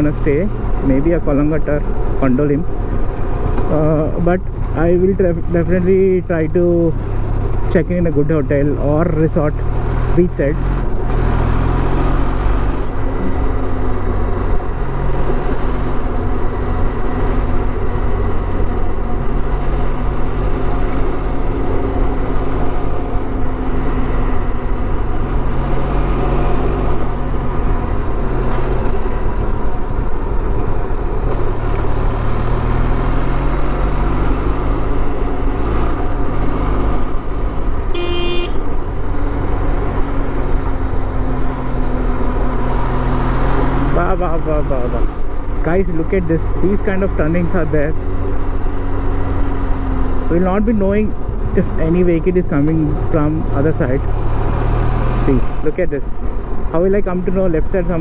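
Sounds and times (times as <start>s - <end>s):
motorcycle engine running: 12.4s - 58.0s
horn honk: 37.9s - 38.8s.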